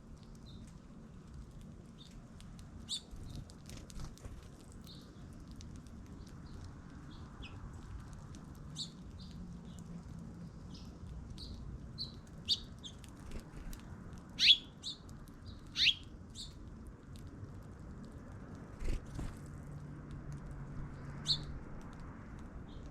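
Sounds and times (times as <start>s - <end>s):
small birds chirping: 0.2s - 0.9s, 1.9s - 2.2s, 2.8s - 16.7s, 20.8s - 21.6s, 22.6s - 22.9s
bird sweeping calls: 14.4s - 14.7s, 15.8s - 16.0s.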